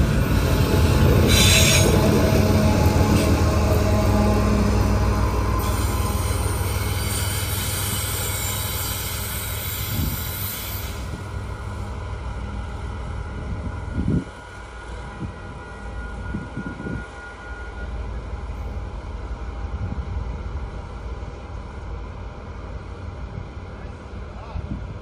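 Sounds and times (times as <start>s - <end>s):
locomotive and freight train rumble: 0.0s - 25.0s.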